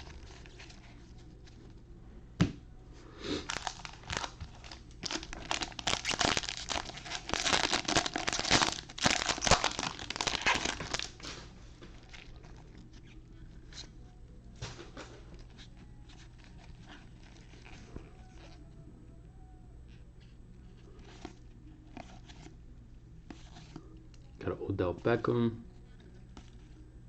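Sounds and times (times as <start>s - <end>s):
plastic wrapper crinkling: 3.4s - 14.0s.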